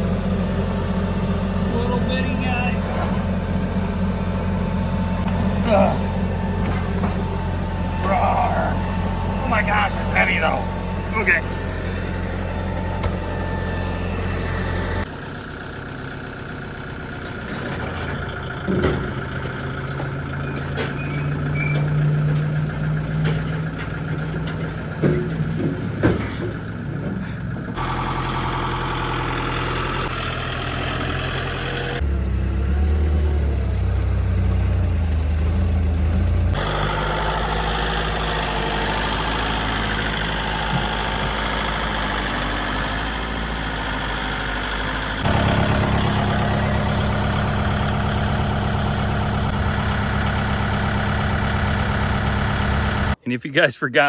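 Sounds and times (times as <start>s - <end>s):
vehicle engine idling: 0.0s - 53.2s
metal clanks and knocks: 5.2s - 12.2s, 17.1s - 28.0s.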